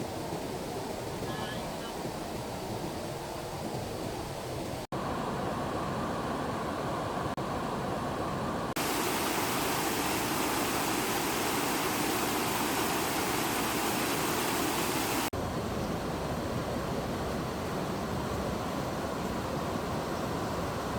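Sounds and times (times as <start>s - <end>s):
fast-flowing stream rushing: 8.8s - 15.3s.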